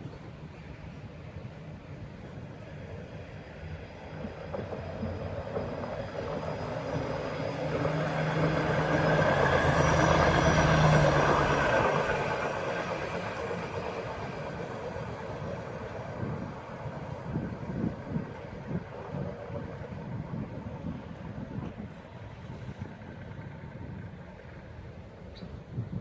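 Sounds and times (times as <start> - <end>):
steel wheels on rail track: 0.0 - 26.0
truck engine passing: 6.0 - 17.8.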